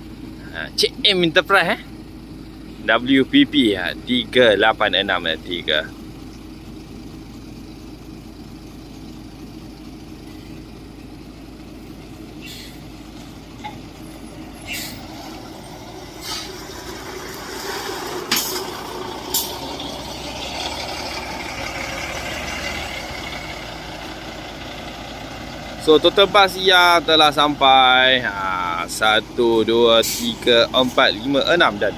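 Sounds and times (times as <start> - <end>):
bus diesel engine running: 0.0 - 31.9
air brakes hissing: 12.3 - 13.0, 14.6 - 15.2, 16.1 - 19.8, 30.0 - 30.4.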